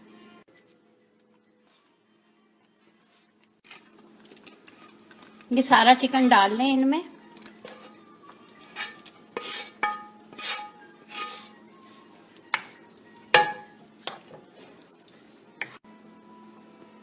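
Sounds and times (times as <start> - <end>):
spoon scraping cooking pot: 7.6 - 11.6
spoon knocking against pot: 13.3 - 13.8.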